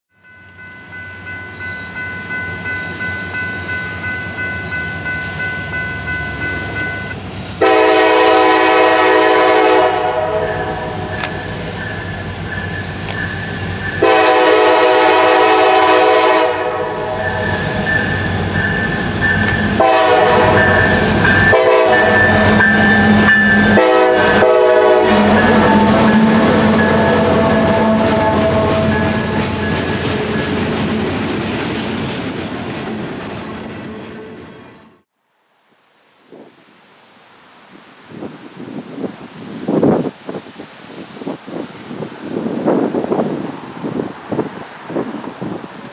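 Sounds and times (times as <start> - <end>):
rhythmic train sound: 0.2 - 35.0
locomotive air horn blasts: 7.6 - 11.2, 13.9 - 18.3, 19.4 - 29.6.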